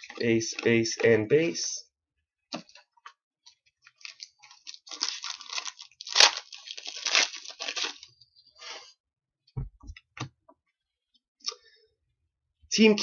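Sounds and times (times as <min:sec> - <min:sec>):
foil wrapper crinkling: 0:03.9 - 0:08.2.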